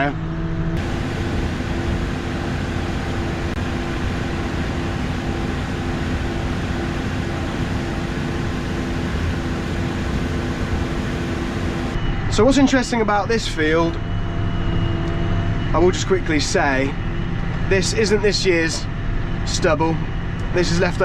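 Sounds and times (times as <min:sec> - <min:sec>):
tractor engine hum: 0:00.8 - 0:12.0.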